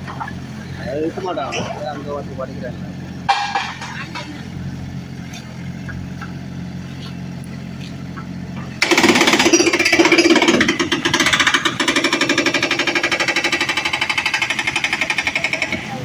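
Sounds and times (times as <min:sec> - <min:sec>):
excavator engine running: 0:00.0 - 0:16.0
hydraulic breaker hammer pounding: 0:03.2 - 0:04.6, 0:08.1 - 0:16.0.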